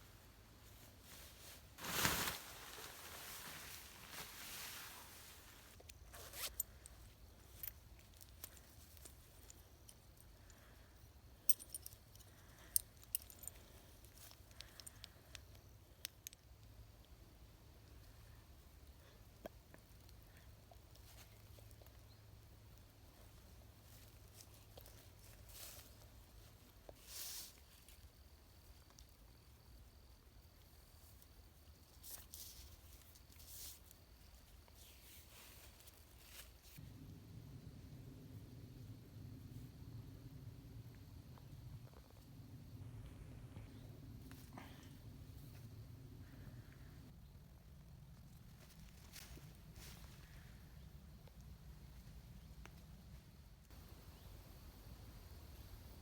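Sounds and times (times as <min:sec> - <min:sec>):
faint rustles: 0:00.0 - 0:15.6, 0:30.6 - 0:37.1.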